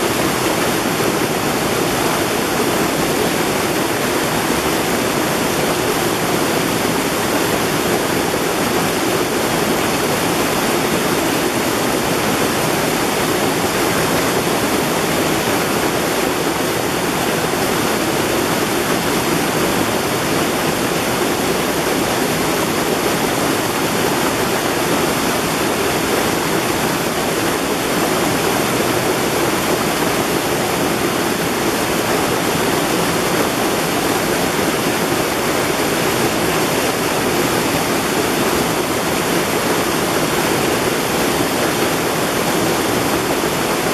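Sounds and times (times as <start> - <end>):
water rushing over rocks: 0.0 - 43.9.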